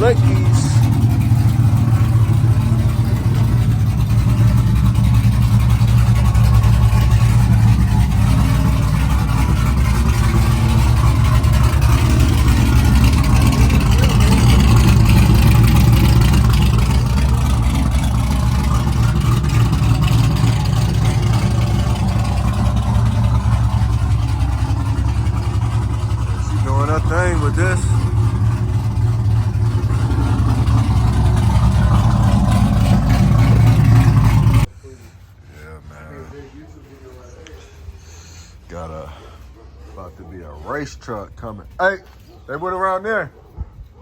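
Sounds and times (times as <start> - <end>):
truck engine idling: 0.0 - 43.9.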